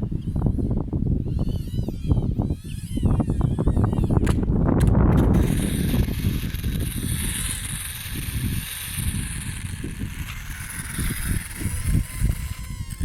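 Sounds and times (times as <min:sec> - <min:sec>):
wind buffeting microphone: 0:00.0 - 0:13.0
model plane propeller whine: 0:05.1 - 0:13.0.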